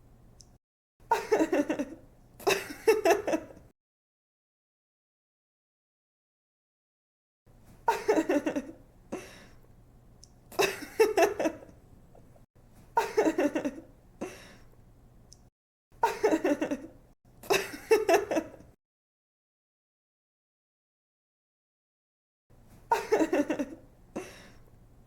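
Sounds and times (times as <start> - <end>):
woman giggling: 1.1 - 3.6, 7.9 - 8.8, 10.6 - 11.7, 13.0 - 13.9, 16.0 - 18.7, 22.9 - 24.5.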